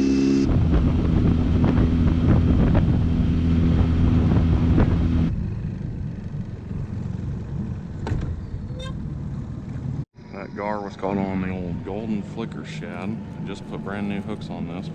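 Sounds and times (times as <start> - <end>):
boat motor running: 0.0 - 9.8.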